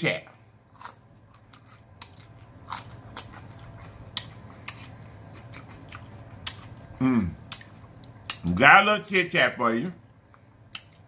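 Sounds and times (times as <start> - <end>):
faint low hum: 0.0 - 11.0
crunching chili pepper: 0.7 - 8.5.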